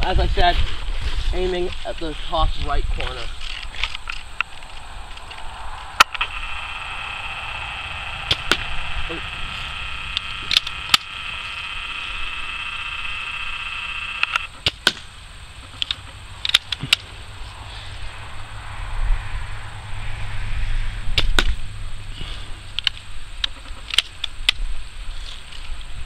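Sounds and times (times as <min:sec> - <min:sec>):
low rumble: 0:02.8 - 0:14.2, 0:16.2 - 0:23.4
steady high tone: 0:04.3 - 0:14.6.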